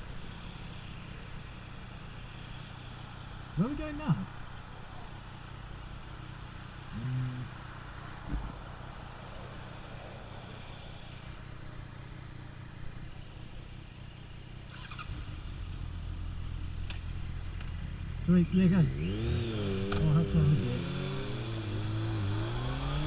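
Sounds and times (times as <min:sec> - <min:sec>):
road noise: 0:00.0 - 0:23.0
motorcycle engine running: 0:10.3 - 0:23.0.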